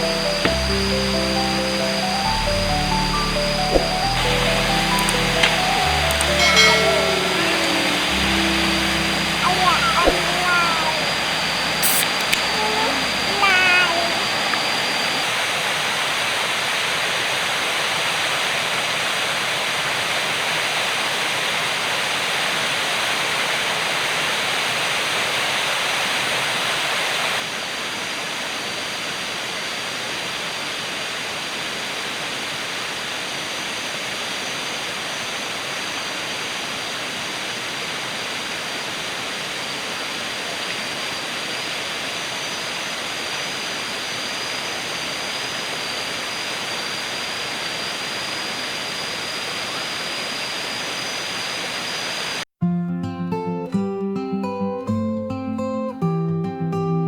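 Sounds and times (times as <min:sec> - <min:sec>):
thin high tone: 0:00.0 - 0:15.3
water rushing: 0:00.0 - 0:52.4.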